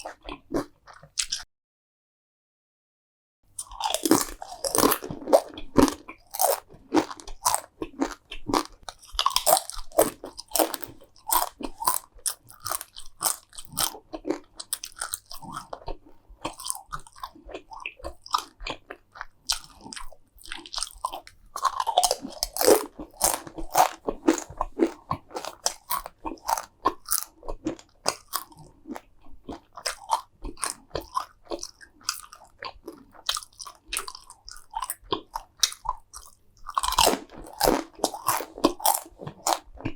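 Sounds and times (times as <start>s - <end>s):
crunching and chewing food: 0.0s - 1.5s, 3.6s - 39.9s.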